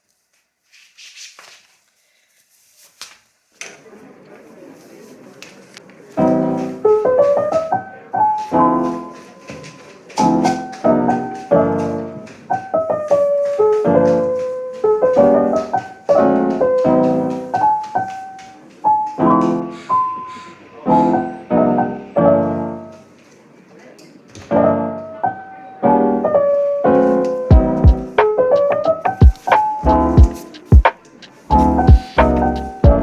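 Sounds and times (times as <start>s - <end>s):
piano playing chords and melody: 6.2s - 23.2s, 24.5s - 33.0s.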